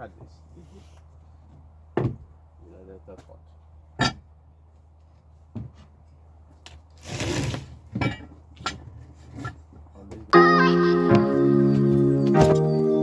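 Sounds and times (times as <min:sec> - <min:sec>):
wood scraping: 0:07.0 - 0:07.9.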